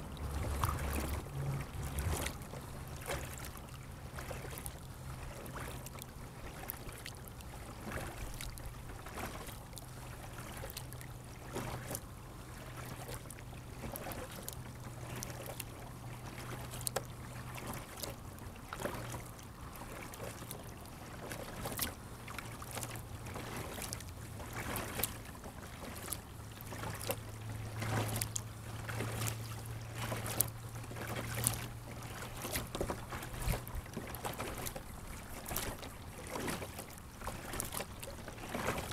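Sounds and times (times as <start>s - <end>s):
low hum: 0.0s - 3.0s
faint wash of water: 0.0s - 38.9s
water splashing and dripping: 27.8s - 34.8s, 35.4s - 37.8s.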